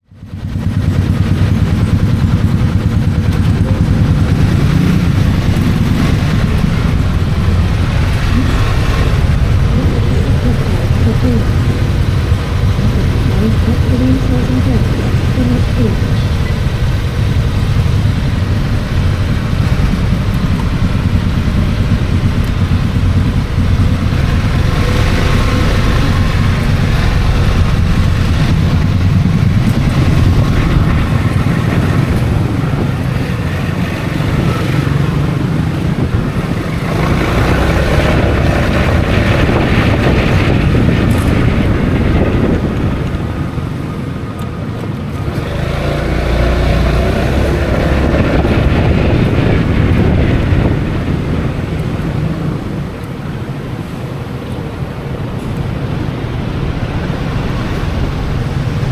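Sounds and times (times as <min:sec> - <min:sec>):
scooter engine running: 0:00.0 - 0:58.9
wind buffeting on microphone: 0:00.0 - 0:58.9.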